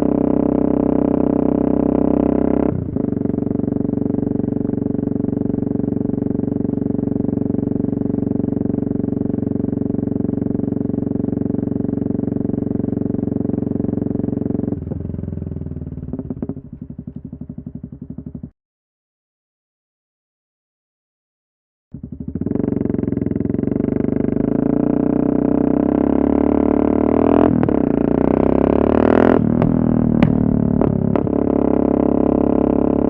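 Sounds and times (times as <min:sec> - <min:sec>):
motorcycle engine through open exhaust: 0:00.0 - 0:18.6, 0:22.0 - 0:33.0.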